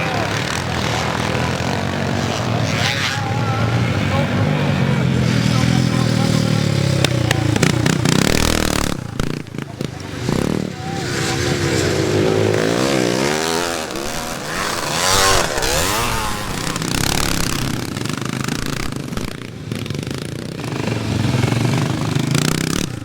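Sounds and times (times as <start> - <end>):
motocross bikes revving: 0.0 - 23.0.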